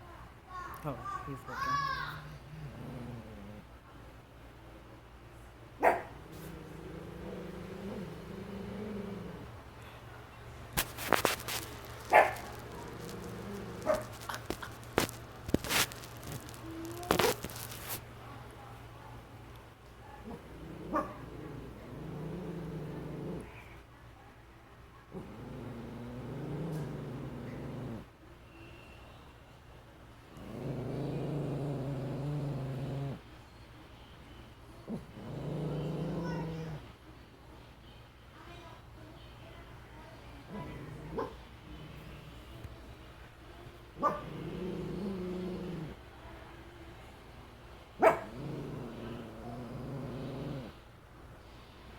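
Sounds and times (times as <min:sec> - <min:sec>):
dog growling low: 0:02.1 - 0:03.8, 0:06.1 - 0:09.7, 0:11.0 - 0:18.0, 0:20.2 - 0:23.6, 0:25.1 - 0:28.1, 0:30.3 - 0:33.2, 0:34.8 - 0:36.9, 0:40.5 - 0:42.7, 0:44.0 - 0:46.1, 0:48.0 - 0:50.8
dog barking: 0:05.8 - 0:06.2, 0:12.1 - 0:12.9, 0:13.8 - 0:14.2, 0:20.0 - 0:21.3, 0:41.1 - 0:41.4, 0:44.0 - 0:44.4, 0:48.0 - 0:48.4.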